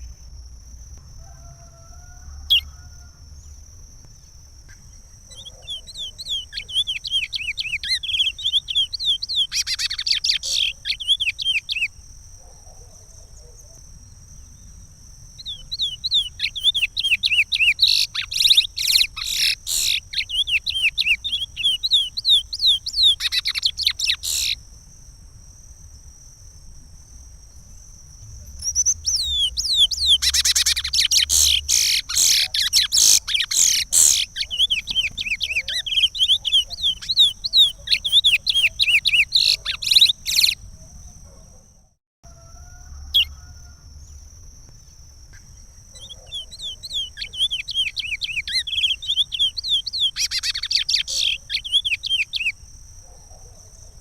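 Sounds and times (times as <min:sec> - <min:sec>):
bird whistling song: 0:05.3 - 0:11.9, 0:15.4 - 0:24.6, 0:28.6 - 0:40.6, 0:46.0 - 0:52.6.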